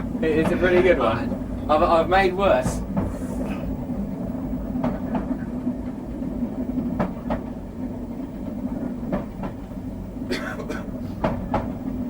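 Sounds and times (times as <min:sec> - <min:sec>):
wheels clicking over rail joints: 0:00.0 - 0:03.5
train running rumble: 0:00.0 - 0:12.0.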